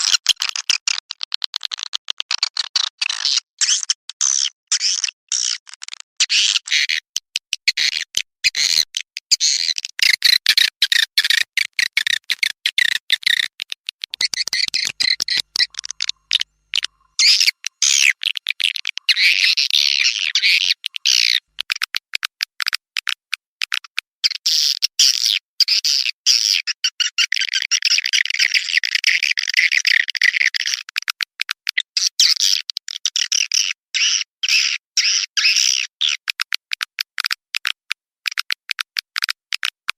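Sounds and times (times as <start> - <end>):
high-pitched bird chirping: 6.2 - 21.5.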